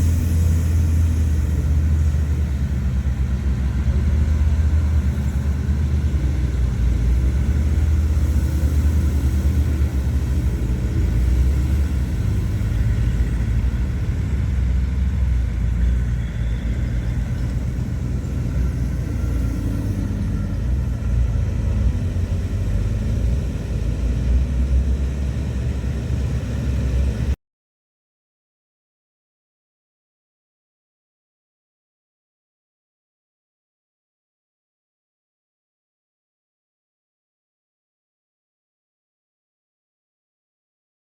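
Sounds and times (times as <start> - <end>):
diesel engine rumbling: 0.0 - 27.4.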